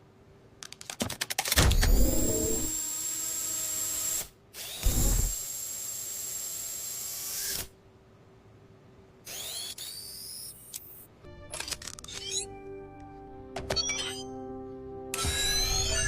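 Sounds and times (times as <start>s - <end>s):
electric motor whirring: 1.9s - 7.7s, 9.3s - 10.7s.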